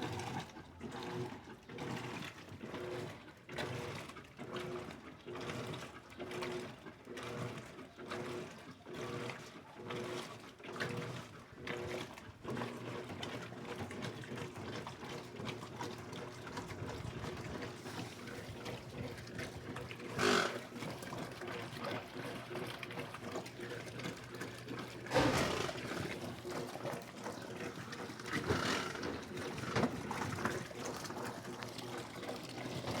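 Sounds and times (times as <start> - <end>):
water sloshing: 16.6 - 21.4, 22.6 - 33.0.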